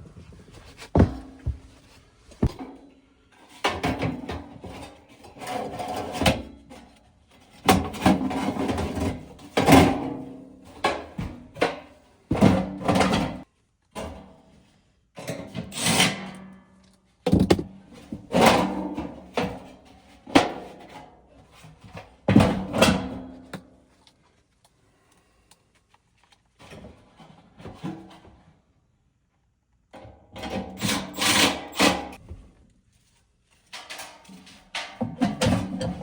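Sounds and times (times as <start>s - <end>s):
tools clunking and scraping: 0.1s - 2.8s, 33.6s - 36.0s.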